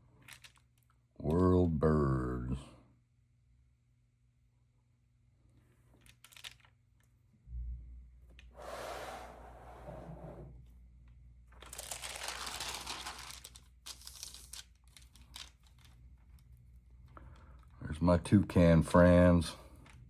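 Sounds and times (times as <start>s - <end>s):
paper scraping: 8.6s - 10.5s
paper rustling: 11.6s - 15.9s.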